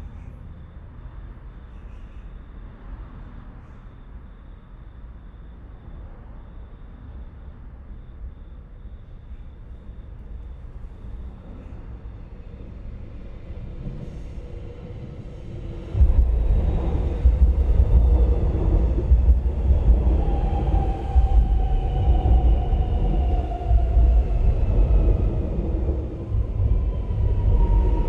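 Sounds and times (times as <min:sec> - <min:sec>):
passing vehicle rumble: 0:14.3 - 0:28.0.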